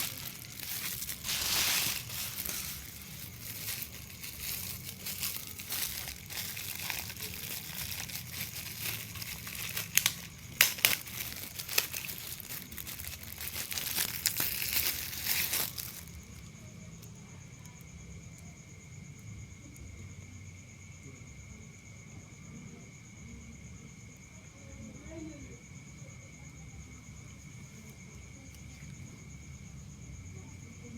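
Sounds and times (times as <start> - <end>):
packaging crinkling and tearing: 0.0 - 16.4.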